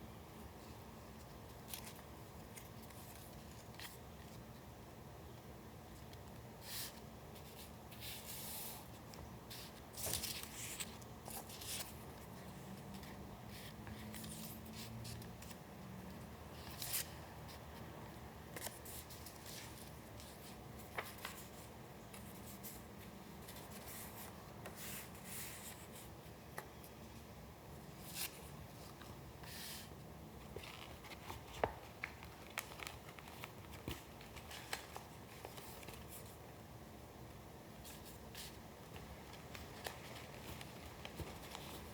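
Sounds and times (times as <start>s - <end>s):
room hiss: 0.0s - 41.9s
paper rustling: 6.0s - 15.7s, 18.5s - 26.1s, 28.0s - 36.4s, 37.8s - 41.9s.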